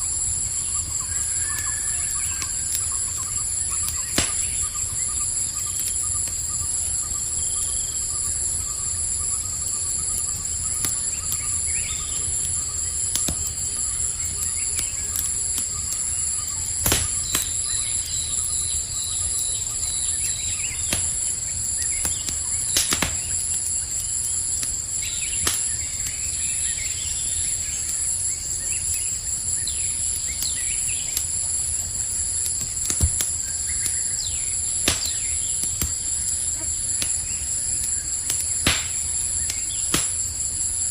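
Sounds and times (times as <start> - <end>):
campfire crackling and popping: 0.0 - 40.9
crickets chirping: 0.0 - 40.9
faint bird chirps: 0.5 - 23.4.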